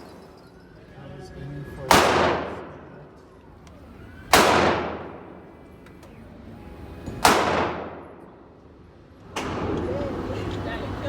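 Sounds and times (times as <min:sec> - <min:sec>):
pistol shots with echo: 0:01.8 - 0:03.2, 0:04.3 - 0:05.6, 0:07.2 - 0:08.5.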